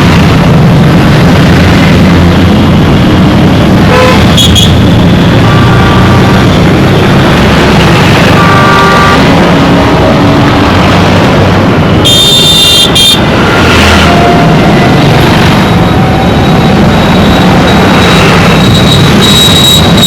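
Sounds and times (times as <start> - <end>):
road traffic engines: 0.0 - 20.0
horns honking: 3.8 - 6.7, 8.1 - 10.4, 12.0 - 20.0.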